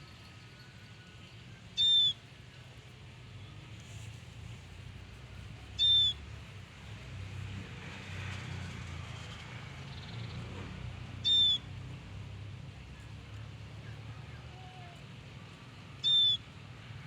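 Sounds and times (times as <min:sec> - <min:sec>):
bird giving shrill call: 0:16.0 - 0:16.4.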